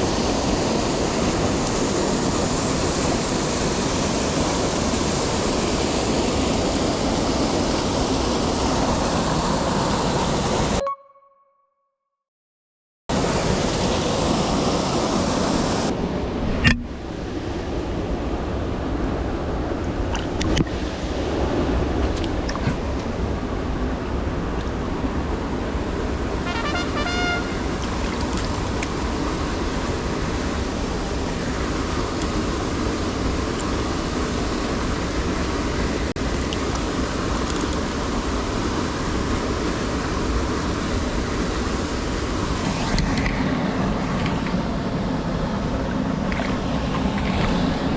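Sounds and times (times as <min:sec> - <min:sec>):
stream rushing over rocks: 0:00.0 - 0:10.8, 0:13.1 - 0:47.9
high chirping notes: 0:10.8 - 0:11.7.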